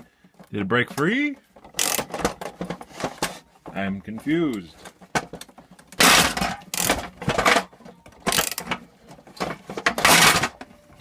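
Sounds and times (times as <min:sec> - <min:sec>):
screw thread skipping harshly: 0:01.7 - 0:02.2.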